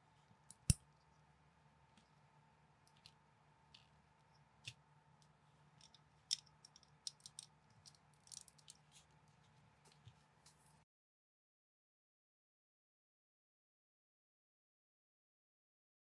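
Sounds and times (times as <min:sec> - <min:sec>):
plastic bricks clicking together: 0:05.8 - 0:08.8.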